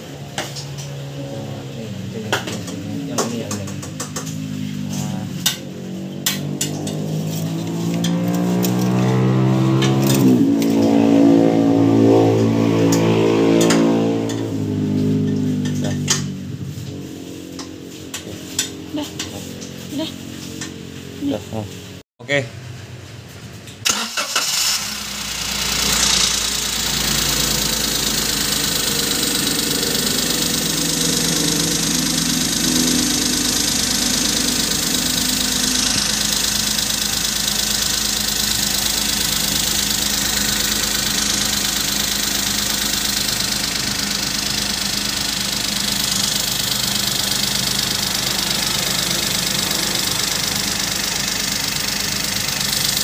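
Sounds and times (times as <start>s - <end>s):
car engine idling: 23.8s - 53.0s.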